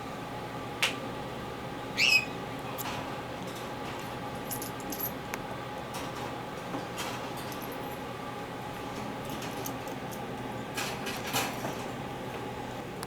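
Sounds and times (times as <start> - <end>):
parrot squawking: 2.0 - 2.4
soft high chirps: 2.0 - 2.4.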